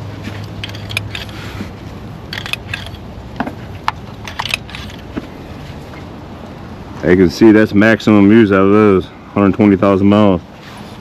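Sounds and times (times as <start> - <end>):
steady low hum: 0.0 - 11.0
metal parts and tools clinking: 0.3 - 1.4, 2.3 - 5.2.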